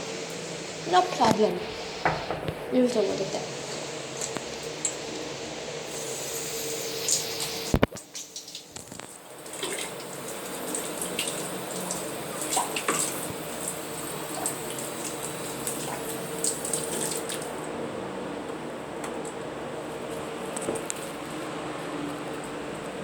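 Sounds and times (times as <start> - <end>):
tap water splashing into sink: 2.0 - 2.6, 7.1 - 17.6.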